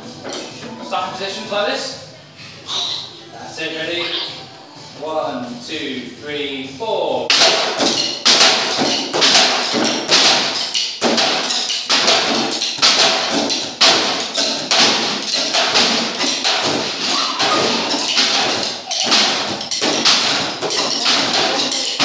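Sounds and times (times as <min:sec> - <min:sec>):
group playing percussion: 0:07.3 - 0:22.0.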